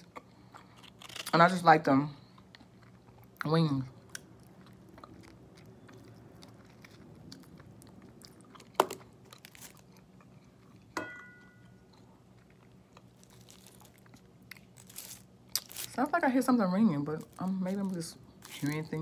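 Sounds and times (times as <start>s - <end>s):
person chewing: 0.0s - 1.3s, 2.2s - 15.9s
high ringing tone: 11.0s - 11.8s.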